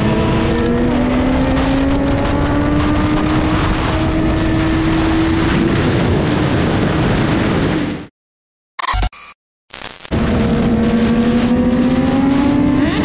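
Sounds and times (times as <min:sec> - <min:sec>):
wind rushing: 0:01.2 - 0:08.1.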